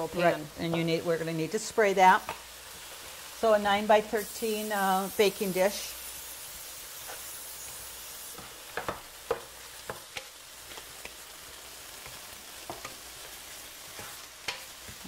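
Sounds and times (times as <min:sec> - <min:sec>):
meat and onion sizzling in a skillet: 0:00.0 - 0:15.0
utensil scraping a pan: 0:06.1 - 0:11.2.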